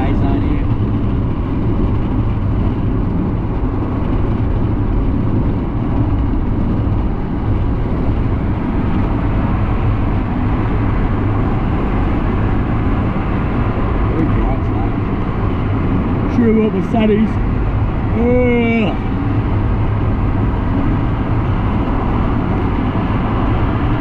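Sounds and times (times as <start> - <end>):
car engine drone: 0.0 - 24.0.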